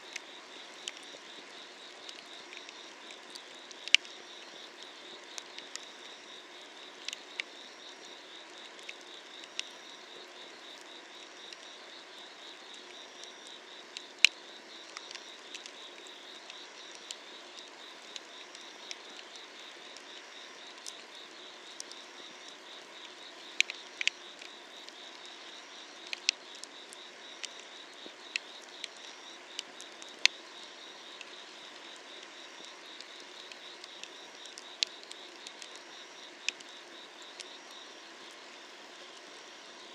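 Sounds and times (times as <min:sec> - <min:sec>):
insect chirping: 0:00.0 - 0:39.9
insects trilling: 0:00.0 - 0:39.9
wood fire crackling: 0:31.2 - 0:35.8.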